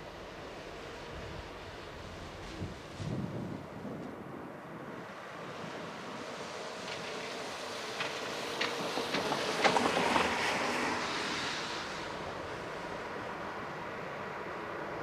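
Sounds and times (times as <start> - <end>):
train rumble passing: 0.0 - 15.0
wheels clacking over rail joints: 6.8 - 11.3.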